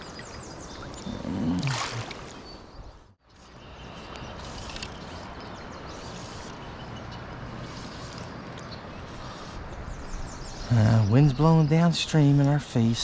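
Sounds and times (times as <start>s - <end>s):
water splash: 1.5s - 2.4s.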